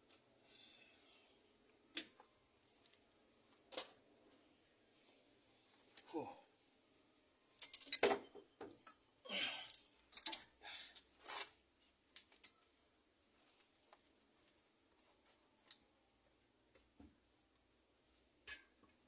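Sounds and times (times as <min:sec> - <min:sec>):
metal parts clicking and knocking: 0:07.6 - 0:09.0.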